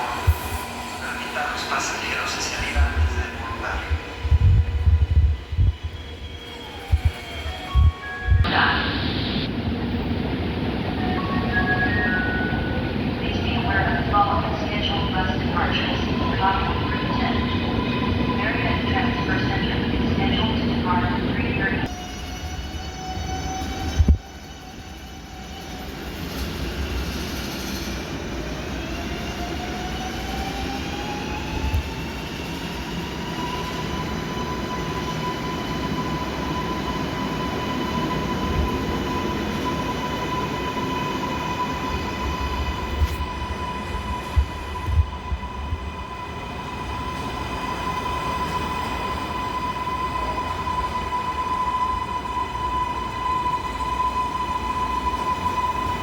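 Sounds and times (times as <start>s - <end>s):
train rumble: 0.0s - 11.2s.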